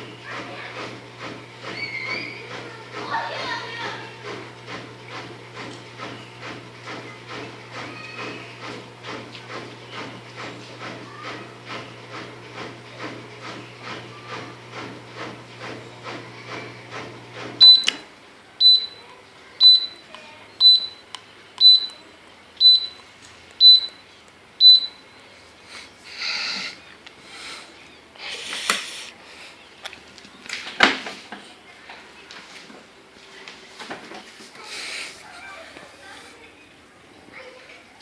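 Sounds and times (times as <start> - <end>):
dishwasher motor humming: 0.0 - 32.1
short high beeps: 17.6 - 18.0, 20.6 - 21.0, 21.6 - 22.0, 22.6 - 23.0, 24.6 - 25.0.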